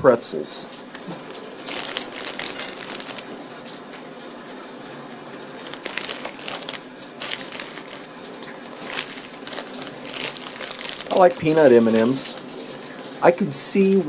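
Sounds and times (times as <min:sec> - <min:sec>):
plastic bag crinkling: 0:00.9 - 0:03.8, 0:05.4 - 0:12.9.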